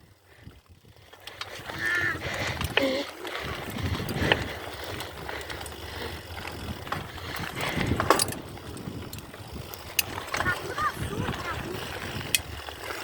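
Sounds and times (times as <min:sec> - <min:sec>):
bicycle chain and frame rattling: 0:00.0 - 0:13.0.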